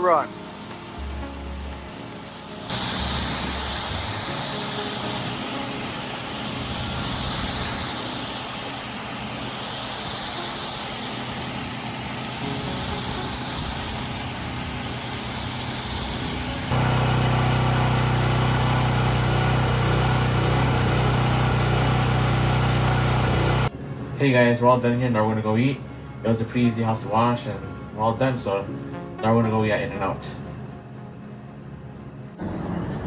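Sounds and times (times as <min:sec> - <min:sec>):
pressure washer spray hissing: 0:00.0 - 0:23.7.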